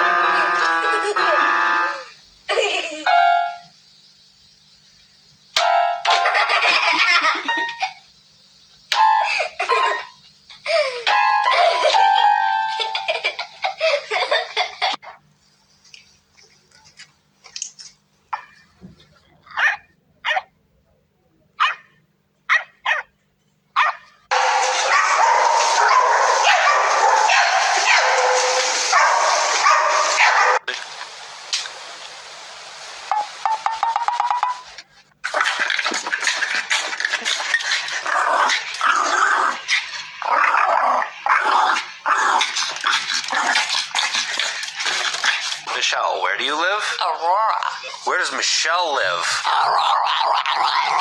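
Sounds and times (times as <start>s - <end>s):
steady loud noise: 0.0s - 3.2s, 24.3s - 34.8s
dog barking: 19.5s - 20.5s, 21.6s - 23.1s, 23.8s - 30.6s
dog growling: 35.3s - 45.8s, 46.7s - 48.1s, 49.1s - 51.0s.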